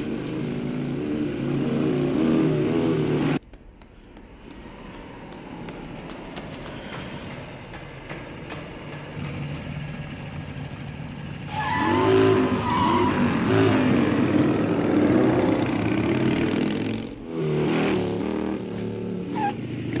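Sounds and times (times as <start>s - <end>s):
vehicle engines revving: 0.0s - 3.4s, 4.5s - 20.0s
tyre squeal: 19.3s - 19.6s.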